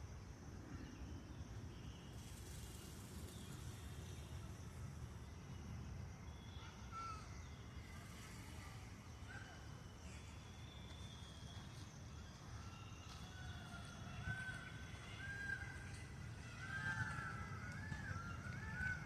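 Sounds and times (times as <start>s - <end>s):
faint bird chirps: 0.2s - 19.0s.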